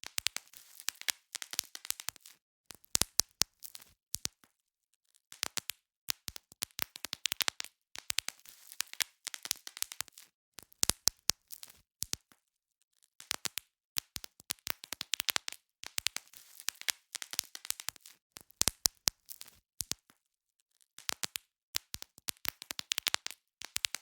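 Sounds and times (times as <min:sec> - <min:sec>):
bubble wrap popping: 0:00.0 - 0:04.4, 0:05.4 - 0:12.3, 0:13.2 - 0:20.2, 0:21.0 - 0:24.0.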